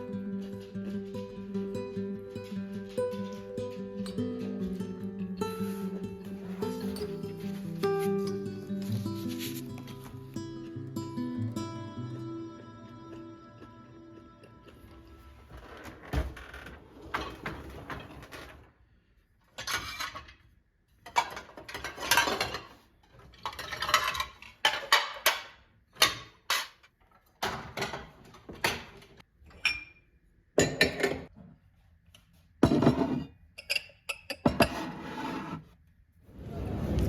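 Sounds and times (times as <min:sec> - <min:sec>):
household objects clattering: 0:15.4 - 0:18.7, 0:21.0 - 0:26.8.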